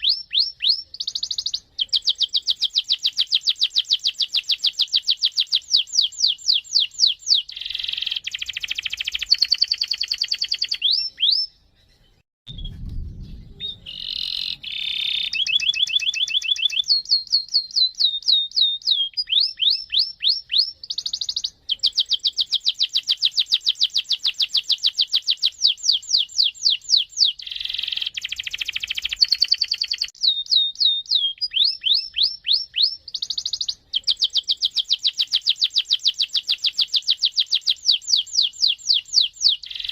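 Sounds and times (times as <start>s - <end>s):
canary singing trills: 0.0s - 12.6s, 13.5s - 39.9s
low thump: 12.5s - 14.0s.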